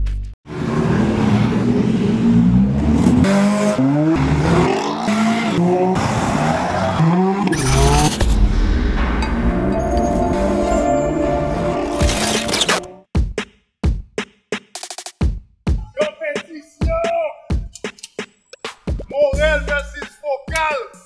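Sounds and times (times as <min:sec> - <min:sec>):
car engine revving: 0:00.5 - 0:08.6.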